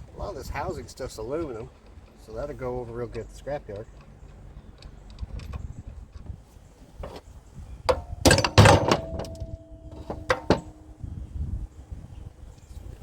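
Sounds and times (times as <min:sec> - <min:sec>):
metal parts clanking: 0:07.9 - 0:11.0.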